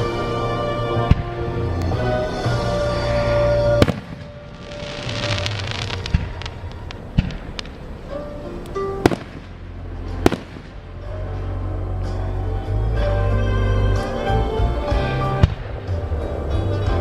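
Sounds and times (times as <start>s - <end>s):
fireworks crackling hiss: 3.6s - 10.8s
fireworks sharp bangs: 3.7s - 8.3s, 9.0s - 11.1s.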